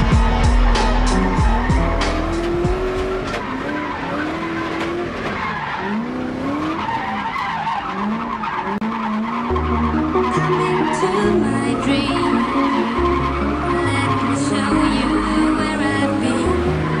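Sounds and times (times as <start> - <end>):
music beat with deep bass: 0.0 - 3.3
car engine revving: 0.0 - 17.0.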